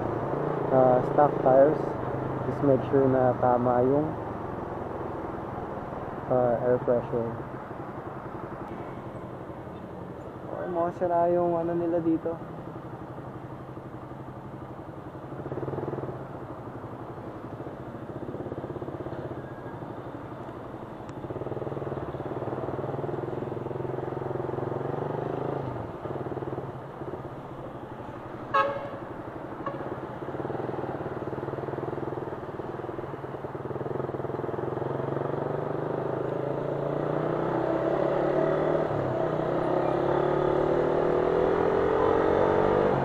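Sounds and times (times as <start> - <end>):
vehicle horn toot: 28.5 - 29.8.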